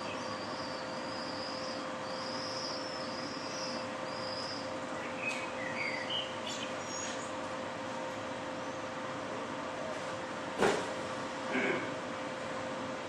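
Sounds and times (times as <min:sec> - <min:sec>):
birds calling: 0:00.0 - 0:07.4
steady hum: 0:00.0 - 0:13.0.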